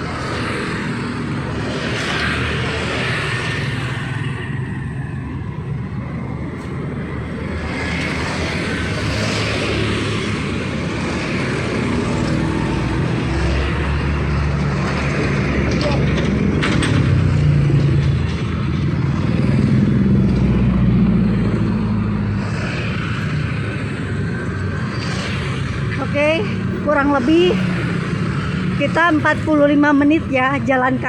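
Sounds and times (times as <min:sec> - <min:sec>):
vehicles passing: 0:00.0 - 0:31.0.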